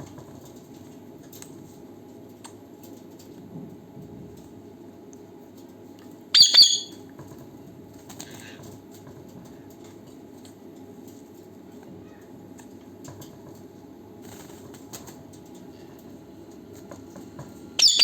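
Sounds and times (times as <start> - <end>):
parrot harsh call: 6.4 - 7.0, 17.8 - 18.0
parrot flapping wings: 14.2 - 15.2.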